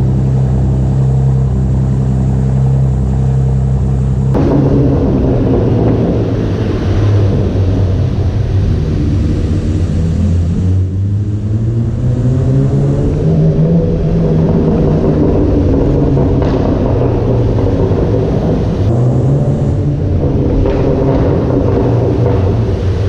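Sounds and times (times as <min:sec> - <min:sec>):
car engine exhaust droning: 0:00.0 - 0:23.0
rushing noise: 0:00.0 - 0:23.0.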